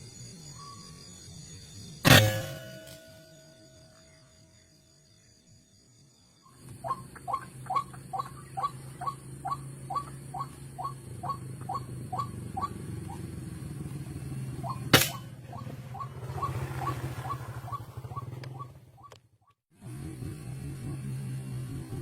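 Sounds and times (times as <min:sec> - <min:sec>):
sharp click: 0:14.9 - 0:15.2.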